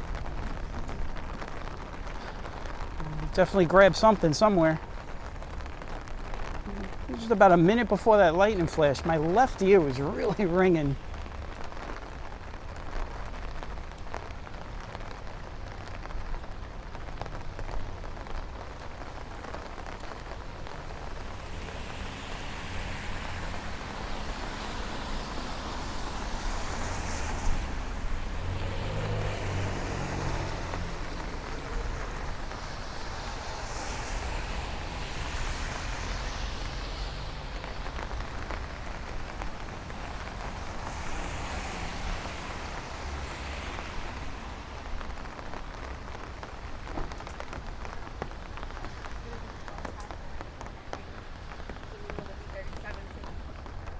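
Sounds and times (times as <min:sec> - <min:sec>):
rain falling: 0:00.0 - 0:53.9
traffic on wet street: 0:00.0 - 0:53.9
tyres hissing on wet road: 0:00.0 - 0:53.9.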